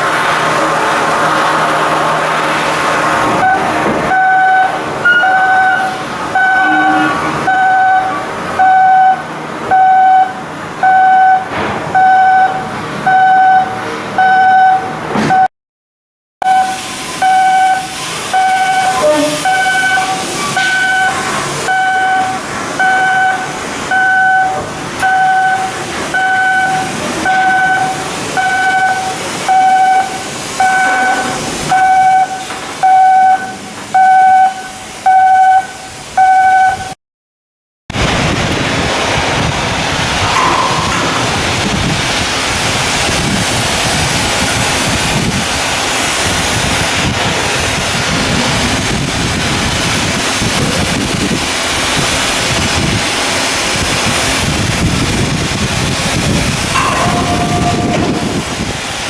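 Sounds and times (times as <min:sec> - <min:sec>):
general work noise: 0:00.0 - 0:15.5, 0:16.4 - 0:37.0, 0:38.1 - 0:59.0
electronic warning beeps: 0:03.4 - 0:15.5, 0:16.4 - 0:37.0.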